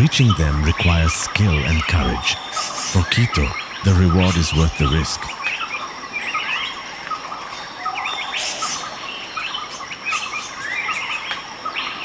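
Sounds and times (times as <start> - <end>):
birds chirping and calling: 0.2 - 5.3.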